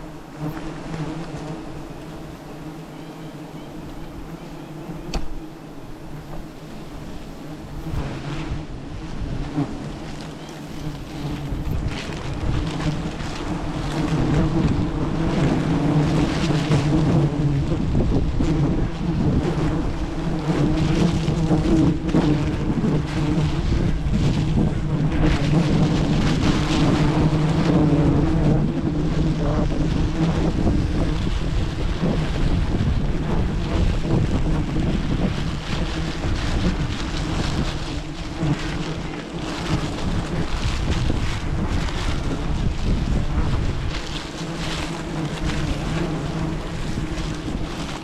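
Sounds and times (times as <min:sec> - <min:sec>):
bees buzzing: 0:00.0 - 0:48.0
wind on microphone: 0:00.0 - 0:48.0.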